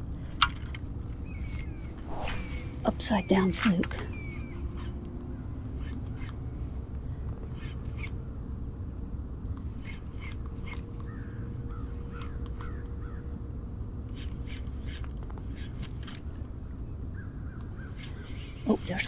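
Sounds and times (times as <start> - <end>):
low background hum: 0.0 - 19.0
bird chirping: 1.3 - 4.9.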